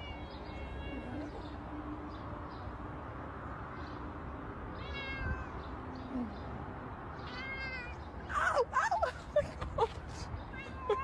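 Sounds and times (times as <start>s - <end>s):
cat meowing: 4.8s - 5.6s, 7.2s - 8.0s.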